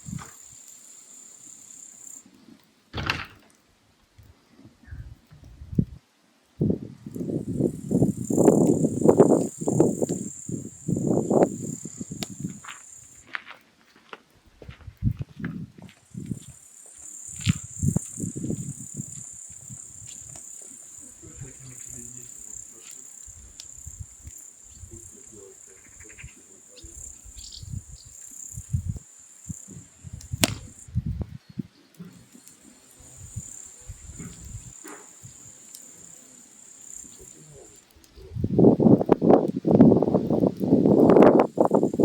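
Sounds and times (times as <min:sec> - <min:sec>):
insect trilling: 0:00.0 - 0:02.3, 0:07.0 - 0:13.3, 0:16.0 - 0:31.0, 0:31.9 - 0:42.0
sharp crack: 0:02.9 - 0:03.6, 0:30.2 - 0:30.9
clicks and low thuds: 0:30.1 - 0:31.3.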